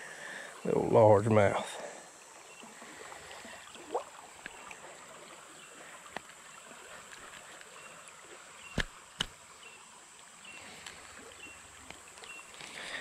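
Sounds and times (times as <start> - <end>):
river current flowing: 0.0 - 13.0
water lapping against boat hull: 1.8 - 9.4.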